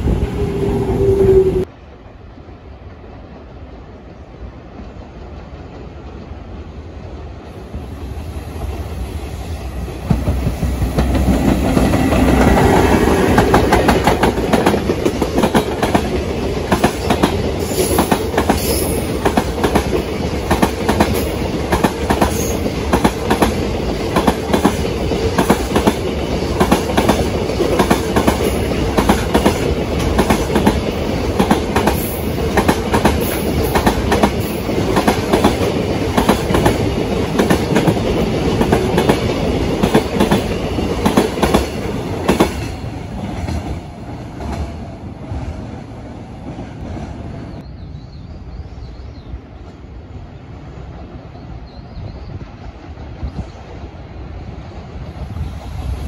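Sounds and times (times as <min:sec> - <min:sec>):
electric locomotive passing: 0:00.0 - 0:56.0.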